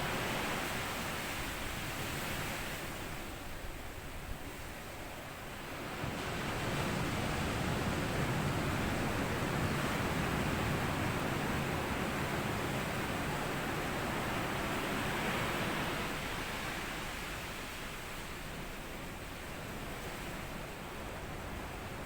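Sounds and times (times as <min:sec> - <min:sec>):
wave washing onto beach: 0:05.3 - 0:22.0.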